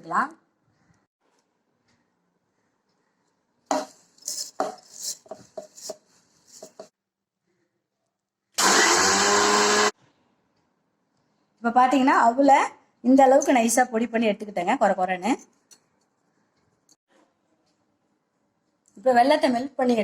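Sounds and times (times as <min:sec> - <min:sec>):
mixer grinder grinding: 0:08.6 - 0:09.9.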